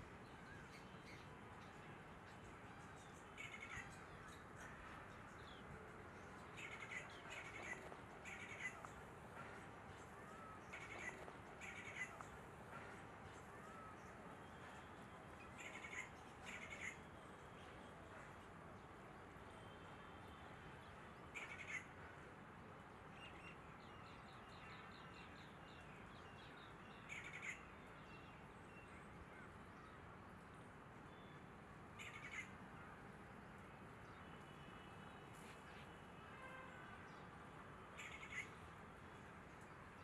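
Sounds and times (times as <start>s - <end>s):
faint high bird trills: 6.6s - 8.9s, 10.2s - 12.3s, 38.0s - 38.6s.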